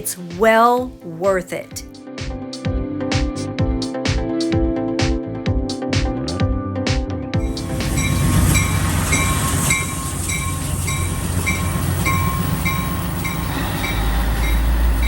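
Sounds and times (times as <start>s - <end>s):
repeating ringing bell tone: 7.4s - 14.6s
train rumbling and rattling: 7.4s - 15.0s.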